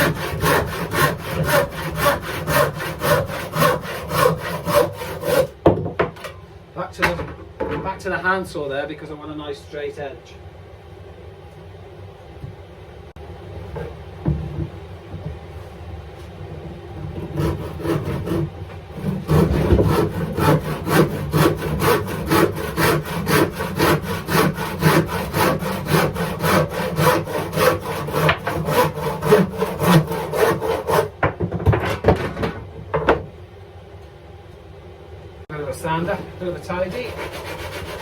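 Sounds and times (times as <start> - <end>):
handsaw cutting wood: 0.0 - 5.6, 17.1 - 31.2, 36.6 - 38.0.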